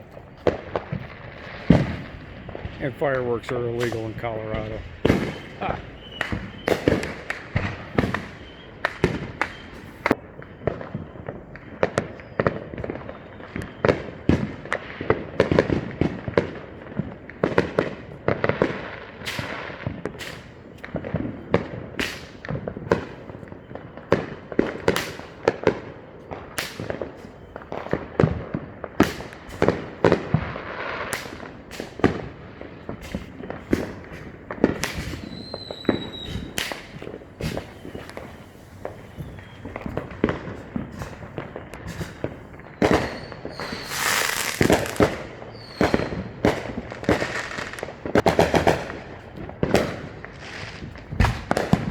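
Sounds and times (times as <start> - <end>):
high firework whistle: 0.0 - 14.4, 32.8 - 48.2
fireworks bangs and pops: 0.0 - 51.9.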